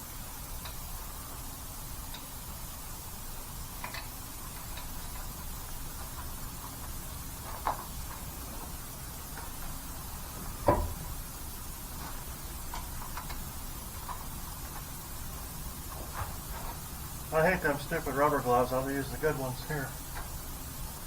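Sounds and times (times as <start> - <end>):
steady low hum: 0.0 - 21.0
sharp knocks: 10.6 - 11.0.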